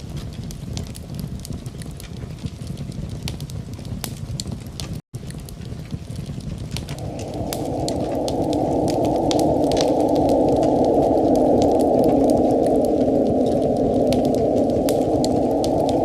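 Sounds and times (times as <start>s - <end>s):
wood fire crackling: 0.0s - 16.0s
rushing noise: 6.9s - 16.0s.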